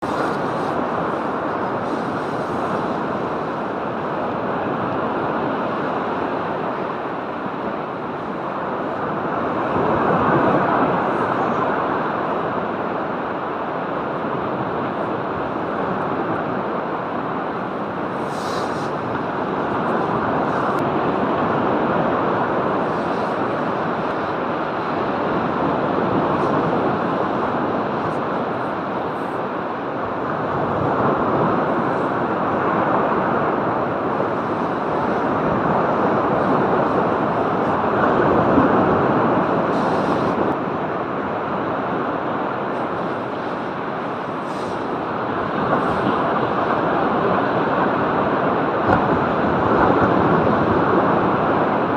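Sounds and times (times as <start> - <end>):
waves breaking on beach: 0.0 - 51.9.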